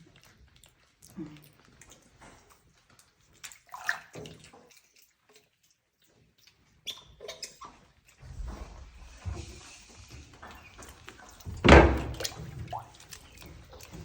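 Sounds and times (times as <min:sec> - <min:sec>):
water splashing in a bathtub: 0:00.0 - 0:14.0
low rumbling rustle: 0:08.2 - 0:12.6.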